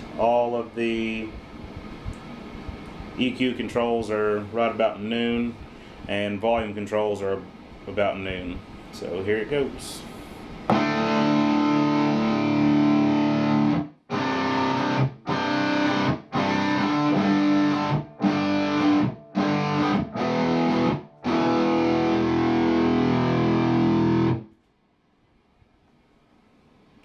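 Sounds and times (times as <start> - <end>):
distorted electric guitar chords: 10.7 - 24.6.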